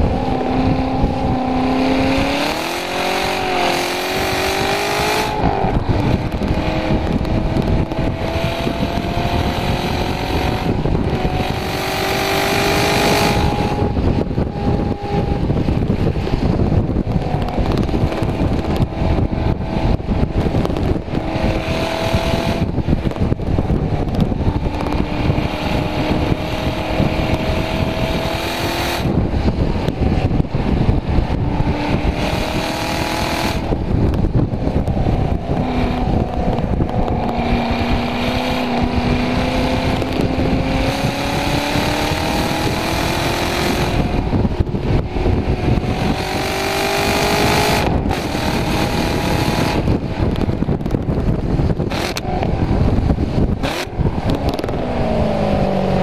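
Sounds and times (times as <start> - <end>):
car engine at full throttle: 0.0 - 56.0
wind and tyre noise: 0.0 - 56.0.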